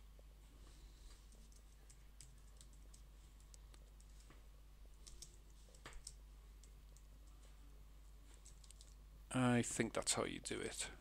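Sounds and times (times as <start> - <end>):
computer keyboard typing: 1.3 - 4.2, 5.0 - 7.1.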